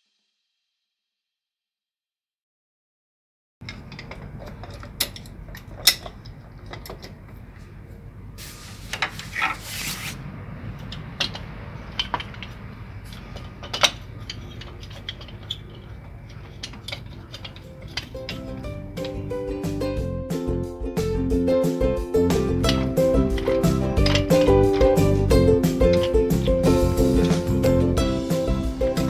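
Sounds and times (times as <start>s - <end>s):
hand tools clicking and knocking: 3.6s - 10.1s, 10.7s - 19.6s, 22.6s - 29.0s
short rasping scrape: 8.4s - 10.2s
steady low hum: 22.6s - 29.0s.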